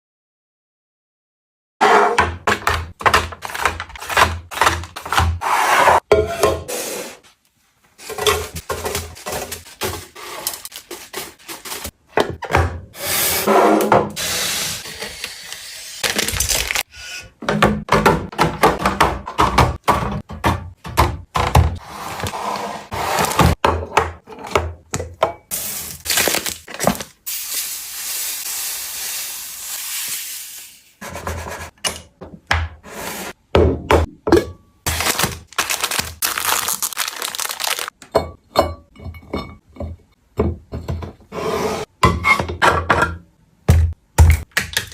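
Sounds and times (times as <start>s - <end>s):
packaging rustling and scraping: 8.0s - 11.9s, 16.0s - 16.9s, 34.9s - 37.9s.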